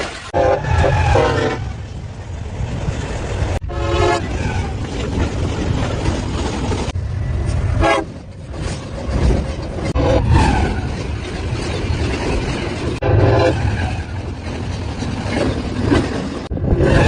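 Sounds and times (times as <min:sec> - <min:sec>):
passing train rumble: 0:00.0 - 0:17.0
train horn blasts: 0:00.3 - 0:01.8, 0:03.6 - 0:04.3, 0:07.8 - 0:08.2, 0:10.0 - 0:10.5, 0:13.0 - 0:13.9.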